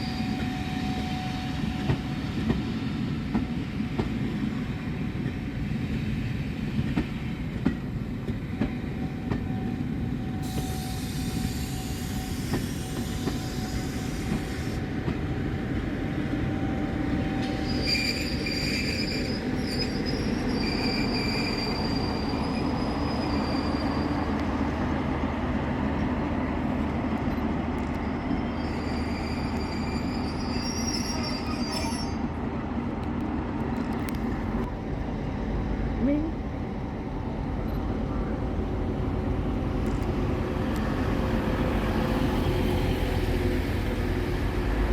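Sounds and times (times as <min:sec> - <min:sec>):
train wheels squealing: 0:00.0 - 0:03.0, 0:08.3 - 0:14.9, 0:16.6 - 0:24.9, 0:27.3 - 0:32.5
train rumbling: 0:00.0 - 0:44.9
hiss: 0:10.4 - 0:14.8.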